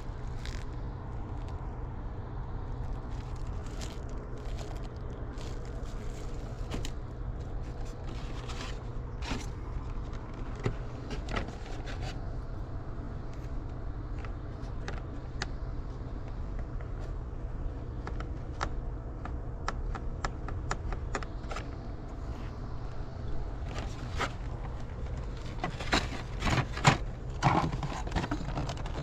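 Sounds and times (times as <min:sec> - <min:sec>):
items being rummaged through: 0:00.0 - 0:01.7, 0:02.7 - 0:12.3, 0:23.6 - 0:29.0
steady low rumble: 0:00.0 - 0:29.0.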